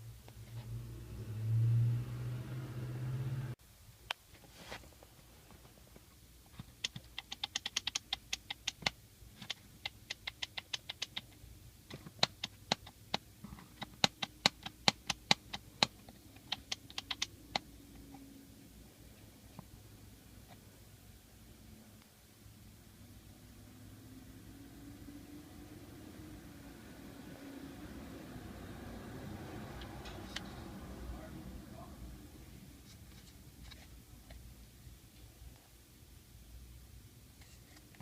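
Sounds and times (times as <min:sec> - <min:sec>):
sharp clicks: 0:06.8 - 0:11.3, 0:13.8 - 0:17.3.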